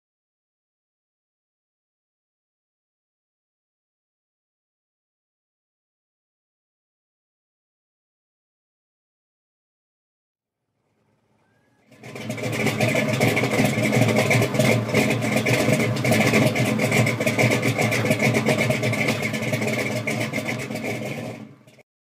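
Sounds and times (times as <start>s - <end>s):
car engine running roughly: 10.8s - 21.8s.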